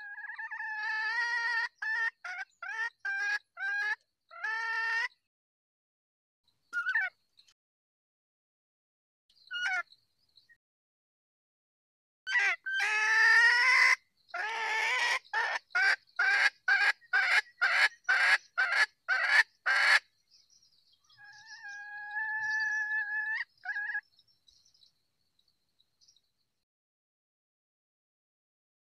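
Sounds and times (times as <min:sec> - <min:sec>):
hen calling and clucking: 0:00.0 - 0:05.2, 0:06.7 - 0:07.2, 0:09.5 - 0:09.9, 0:12.3 - 0:20.0, 0:21.1 - 0:24.1.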